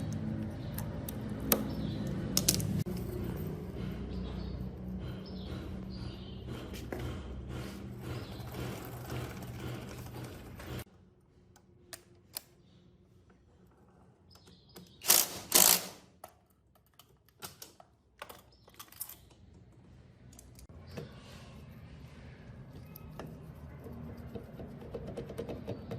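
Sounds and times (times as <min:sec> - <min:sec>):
mechanical hum: 0:00.0 - 0:16.3.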